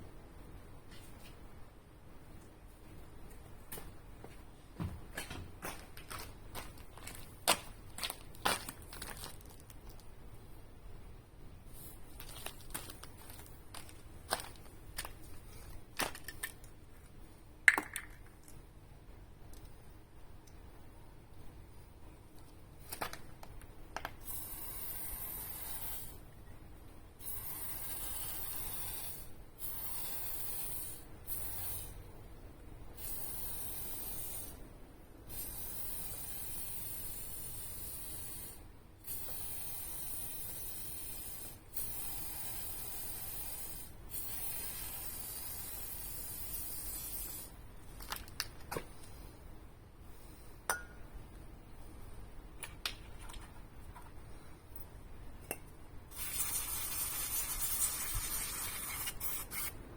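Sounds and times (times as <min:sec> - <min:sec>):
aerosol spray can hissing: 0:24.2 - 0:26.2, 0:27.2 - 0:31.9, 0:33.0 - 0:34.6, 0:35.3 - 0:47.5, 0:56.1 - 0:59.8.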